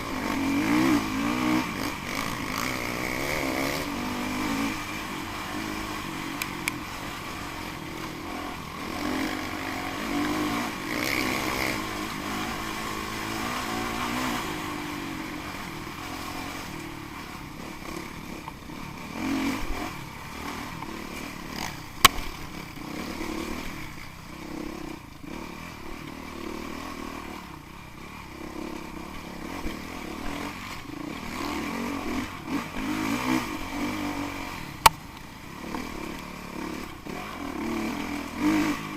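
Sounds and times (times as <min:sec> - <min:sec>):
dirt bike engine revving: 0:00.0 - 0:38.9
sharp click: 0:22.0 - 0:22.3.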